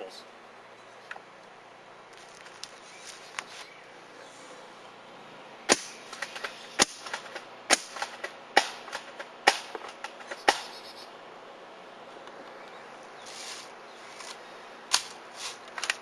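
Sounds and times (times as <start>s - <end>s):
airsoft rifle shots: 5.7s - 10.8s.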